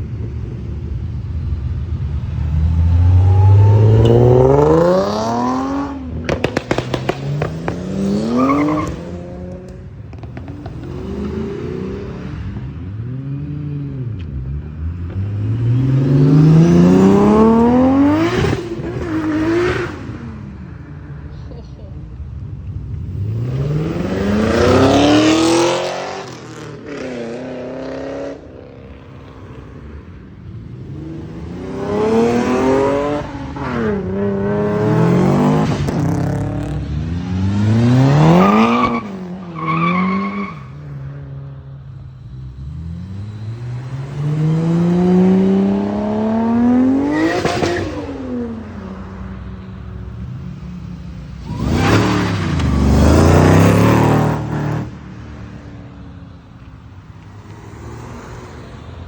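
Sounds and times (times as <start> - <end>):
cars accelerating hard: 1.8 - 21.3, 22.9 - 50.6, 51.3 - 55.6
car passing by: 2.2 - 9.4.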